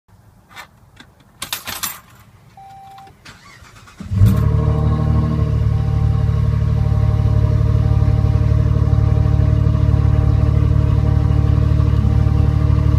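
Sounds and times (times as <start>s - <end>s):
keys clicking and rattling: 1.4s - 2.3s
car engine starting and idling: 2.5s - 12.9s
short beep: 2.6s - 3.1s.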